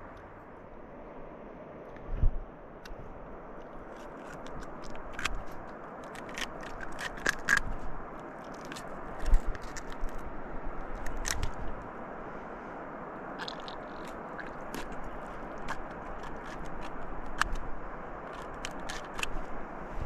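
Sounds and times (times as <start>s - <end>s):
knife scraping fish: 3.9s - 7.8s.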